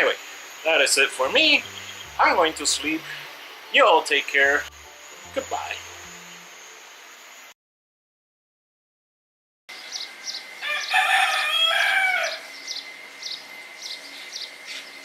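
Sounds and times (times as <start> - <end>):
small birds chirping: 0.5 - 4.8, 9.7 - 11.0, 12.2 - 15.0
thin high tone: 0.7 - 7.5
rooster crowing: 10.3 - 12.9.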